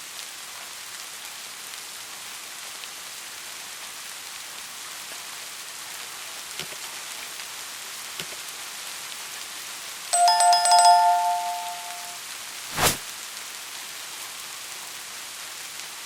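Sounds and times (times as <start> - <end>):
steady rain: 0.0 - 11.6, 12.2 - 16.0
loud two-tone chime ringing: 10.2 - 12.2.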